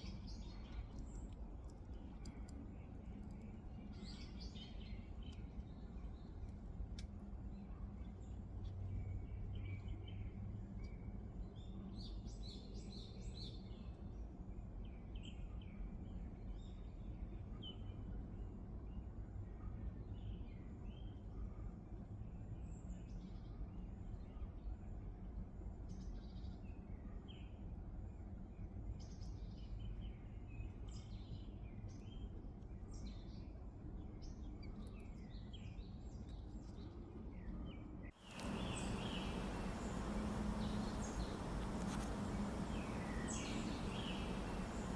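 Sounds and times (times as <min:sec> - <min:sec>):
low background rumble: 0:38.1 - 0:44.9
birds chirping: 0:38.2 - 0:44.9
even hiss: 0:38.2 - 0:44.9.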